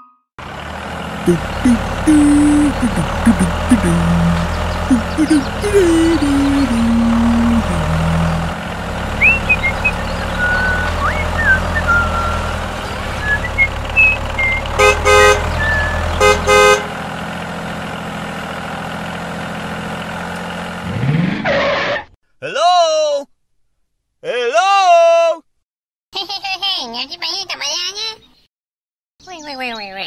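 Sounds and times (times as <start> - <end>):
tractor engine running: 0.4 - 21.2
short high chirps: 9.2 - 14.7
horn toots: 14.4 - 17.0.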